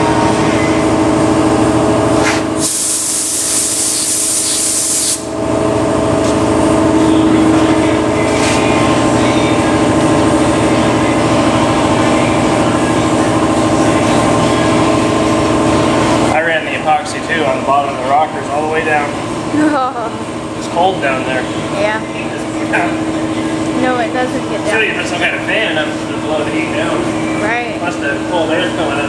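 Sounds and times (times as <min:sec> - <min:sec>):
steady machine hum: 0:00.0 - 0:29.0
spray gun puffs: 0:02.2 - 0:05.3
spray gun hissing: 0:02.6 - 0:05.3.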